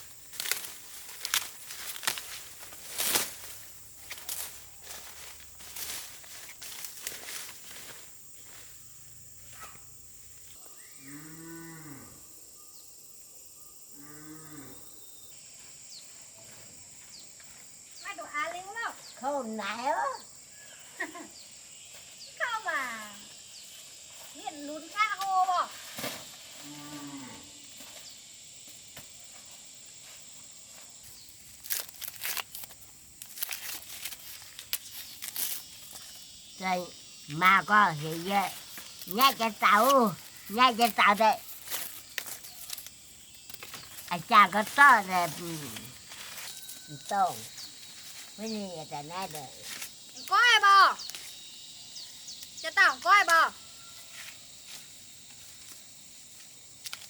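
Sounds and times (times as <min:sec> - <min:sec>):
rustling and crackling handling: 0:00.0 - 0:08.0, 0:31.4 - 0:36.2, 0:38.0 - 0:48.4.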